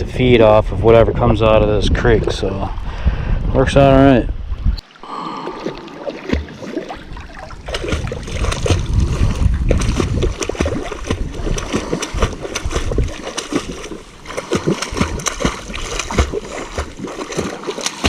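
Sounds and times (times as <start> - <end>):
water splashing and sloshing: 4.3 - 18.0.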